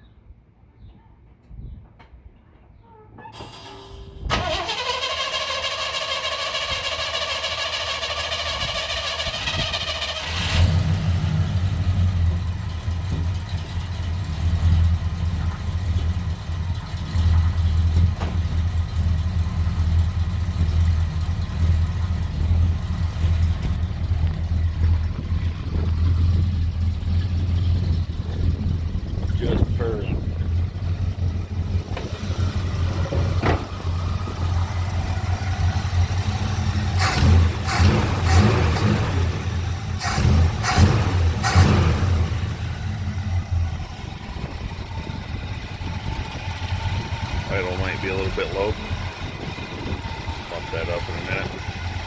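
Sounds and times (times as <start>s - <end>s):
engine idling low: 3.5s - 52.0s
starter motor cranking: 3.6s - 10.9s.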